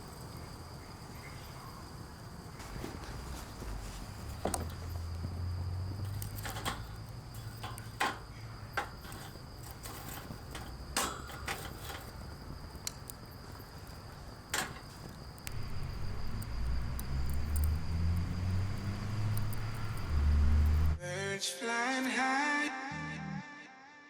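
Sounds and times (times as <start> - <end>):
insects chirring: 0.0 - 21.0
low rumble: 15.5 - 21.0.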